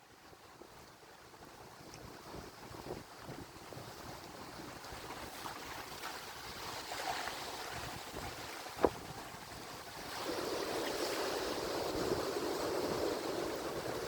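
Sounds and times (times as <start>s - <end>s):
ocean waves washing: 3.6s - 14.0s.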